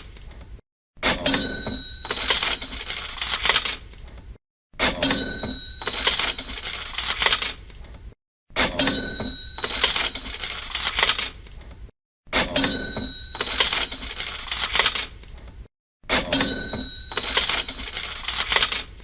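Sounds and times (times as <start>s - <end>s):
coins and cash drawer clatter: 0.0s - 0.3s, 1.0s - 4.1s, 4.8s - 7.8s, 8.6s - 11.6s, 12.3s - 15.5s, 16.1s - 19.0s
cash register bell ring: 1.0s - 3.7s, 4.9s - 7.4s, 8.6s - 11.4s, 12.4s - 15.0s, 16.1s - 18.9s.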